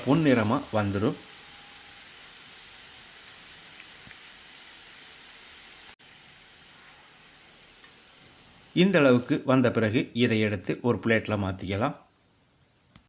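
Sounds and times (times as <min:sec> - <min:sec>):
onions sizzling in hot oil: 0:00.0 - 0:09.4.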